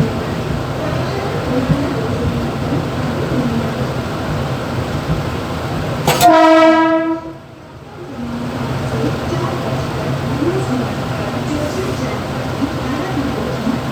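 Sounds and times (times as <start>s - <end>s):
train cab rumble and rattle: 0.0s - 13.9s
train horn: 6.1s - 7.5s.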